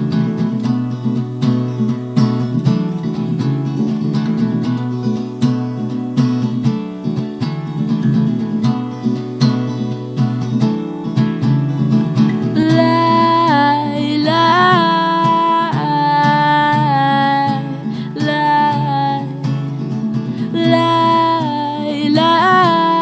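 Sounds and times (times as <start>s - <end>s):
acoustic guitar strumming: 0.0s - 23.0s
woman singing: 12.4s - 23.0s.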